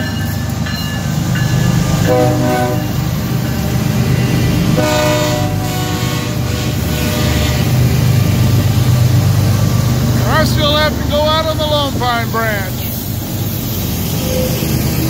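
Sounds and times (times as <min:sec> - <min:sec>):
diesel locomotive engines rumbling: 0:00.0 - 0:15.0
train air horn blasts: 0:02.1 - 0:03.0, 0:04.7 - 0:07.8.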